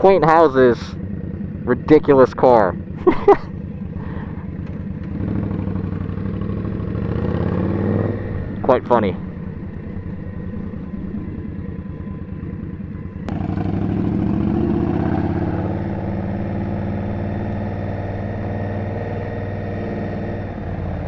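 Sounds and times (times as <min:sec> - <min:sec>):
motorcycle engine idling: 0:00.0 - 0:07.3, 0:08.0 - 0:14.9
motorcycle pulling away: 0:02.7 - 0:21.0.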